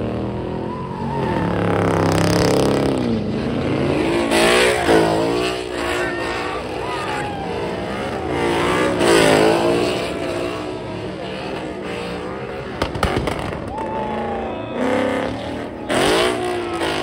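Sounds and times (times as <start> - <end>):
car engine revving hard: 1.5 - 17.0
sharp cracks: 12.8 - 13.9.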